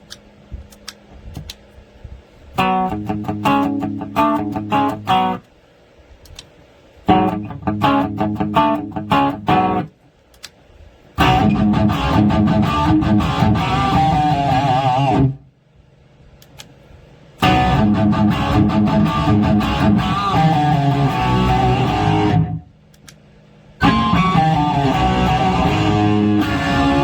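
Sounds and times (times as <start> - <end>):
electric guitar notes: 2.6 - 5.4, 7.1 - 9.9, 11.2 - 15.4, 17.4 - 22.7, 23.8 - 27.0.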